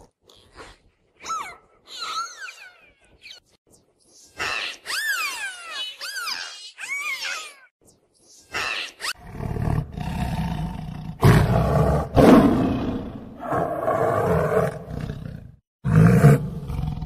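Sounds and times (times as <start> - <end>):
tiger roaring: 9.2 - 17.0.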